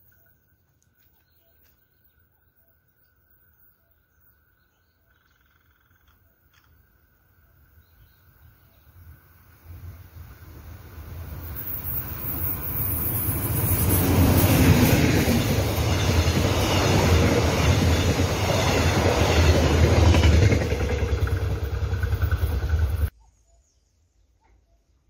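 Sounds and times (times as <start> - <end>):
train wheels rumbling on rail: 9.7 - 23.1.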